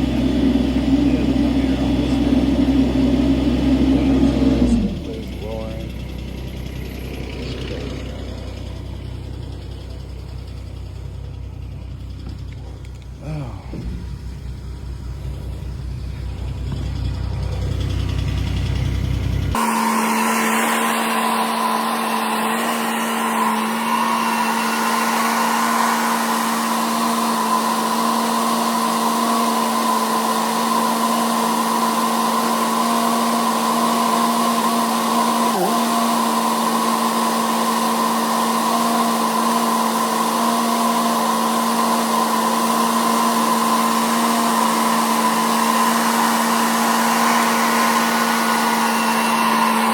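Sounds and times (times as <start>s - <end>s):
low engine rumble: 0.0s - 19.6s
machine whining: 0.0s - 49.9s.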